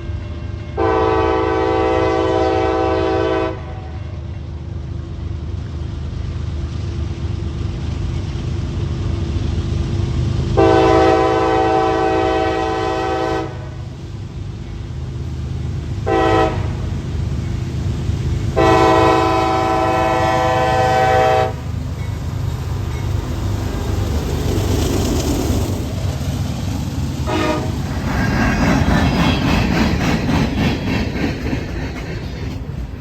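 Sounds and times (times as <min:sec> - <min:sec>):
train rumbling: 0:00.0 - 0:33.0
locomotive air horn: 0:00.2 - 0:04.3, 0:10.6 - 0:13.8, 0:16.0 - 0:16.9, 0:18.6 - 0:21.7, 0:27.2 - 0:27.8.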